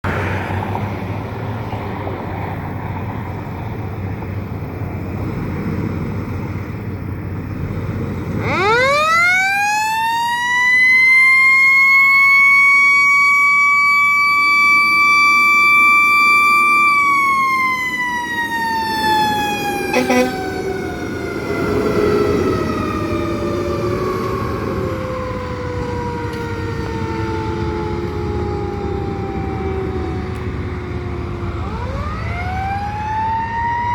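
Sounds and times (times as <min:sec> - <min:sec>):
road noise: 0:00.0 - 0:33.9
truck engine: 0:00.0 - 0:33.9
fire truck mechanical siren: 0:02.4 - 0:33.9.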